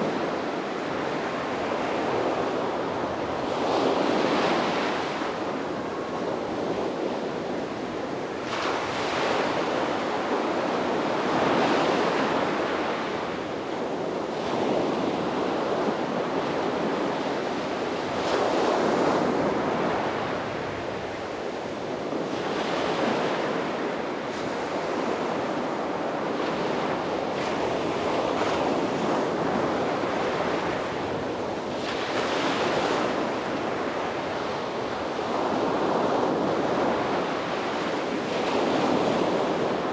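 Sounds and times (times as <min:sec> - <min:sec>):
sea waves breaking on beach: 0:08.2 - 0:39.9.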